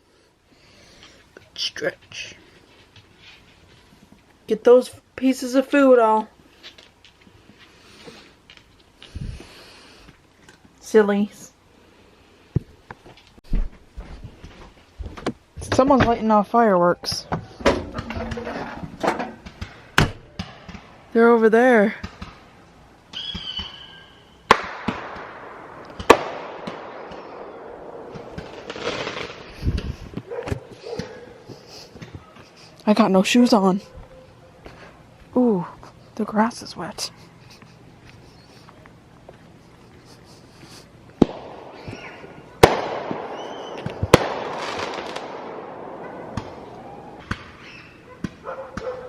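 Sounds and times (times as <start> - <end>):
firework crackle and rumble: 22.0 - 30.8, 40.1 - 47.7
firework whistle: 23.1 - 24.5, 41.7 - 44.0
firework bangs: 23.1 - 31.2, 41.2 - 48.9
dull firework pops: 24.5 - 31.1, 41.2 - 45.6.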